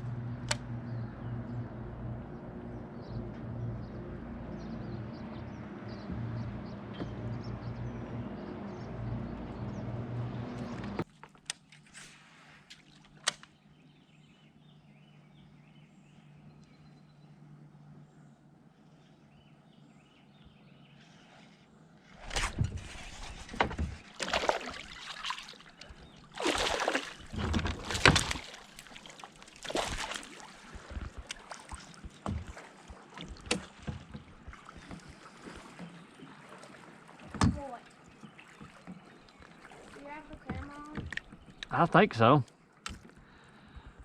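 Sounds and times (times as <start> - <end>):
water splashing: 22.2 - 43.4
knocks against a kayak: 30.7 - 36.0, 37.2 - 37.8.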